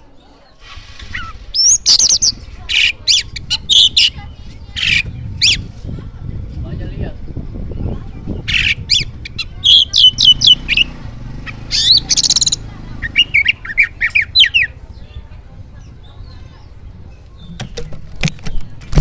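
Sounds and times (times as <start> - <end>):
bird singing whistled notes: 1.1 - 5.7, 7.5 - 15.2
harsh buzzy bird call: 8.5 - 14.8.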